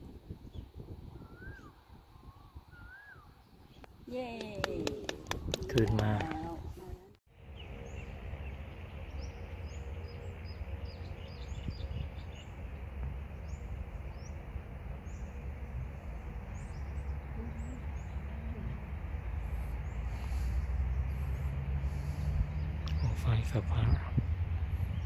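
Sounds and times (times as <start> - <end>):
steady low rumble: 3.8 - 25.0
small birds chirping: 5.2 - 15.6, 16.5 - 25.0.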